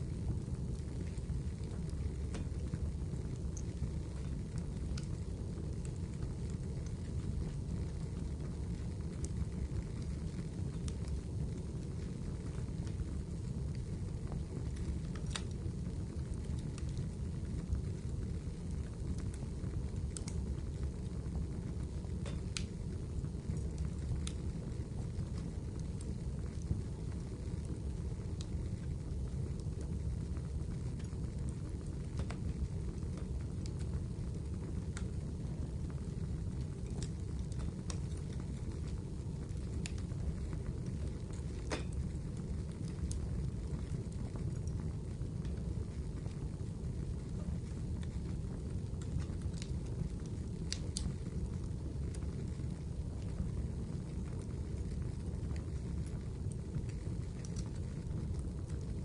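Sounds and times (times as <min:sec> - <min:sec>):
fire crackling and popping: 0:00.0 - 0:59.0
wood fire rumbling: 0:00.0 - 0:59.0.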